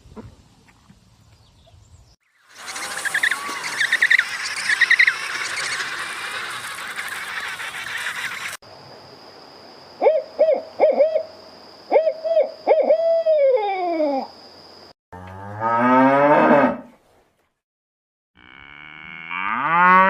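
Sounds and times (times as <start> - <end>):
hooting animal calls: 2.4 - 8.6
cow mooing: 15.2 - 16.9, 18.4 - 20.0.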